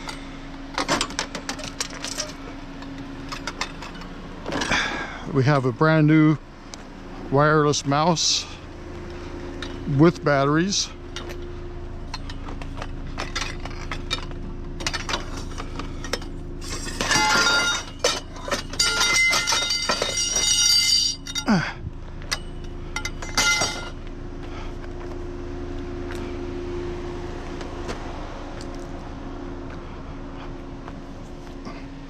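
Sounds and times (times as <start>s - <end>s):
steady low hum: 0.0s - 32.0s
scrap metal clattering: 11.1s - 24.0s.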